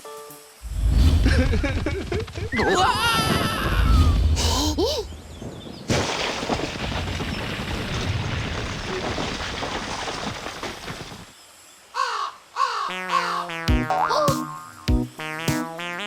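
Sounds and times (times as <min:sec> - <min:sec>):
cartoon rumbling crash: 0:00.6 - 0:10.8
cartoon character cries: 0:02.6 - 0:05.0, 0:13.1 - 0:14.5.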